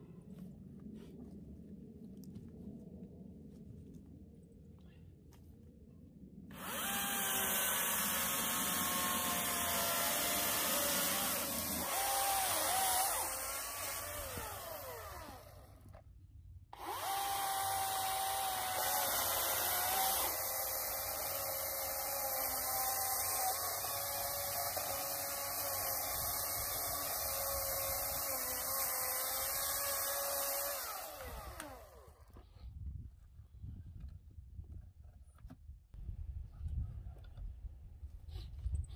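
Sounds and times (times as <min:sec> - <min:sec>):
electric chainsaw cutting logs: 0:06.5 - 0:16.0, 0:16.8 - 0:32.5.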